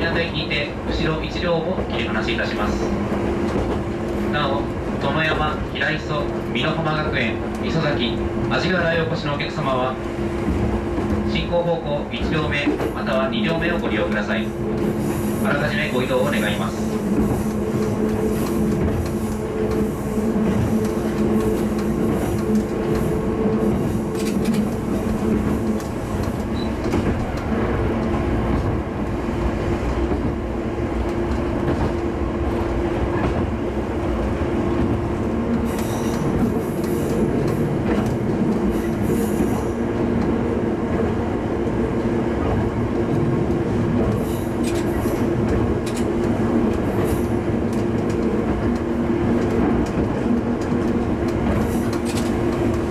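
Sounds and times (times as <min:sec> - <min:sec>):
railcar engine drone: 0:00.0 - 0:52.9
wheels rumbling on rail: 0:00.0 - 0:52.9.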